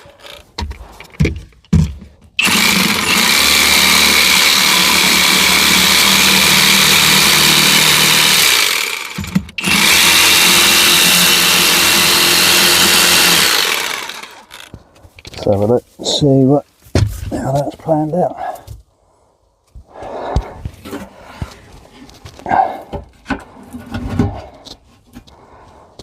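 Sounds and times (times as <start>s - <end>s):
power tool cutting wood: 2.4s - 14.8s.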